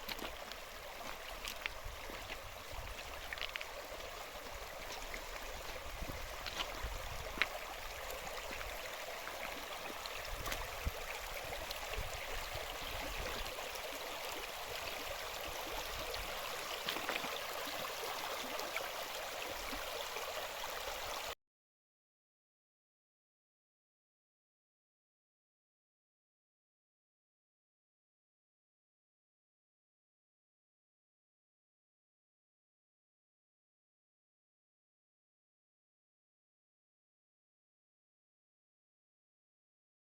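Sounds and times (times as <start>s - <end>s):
stream water flowing: 0.0s - 21.4s.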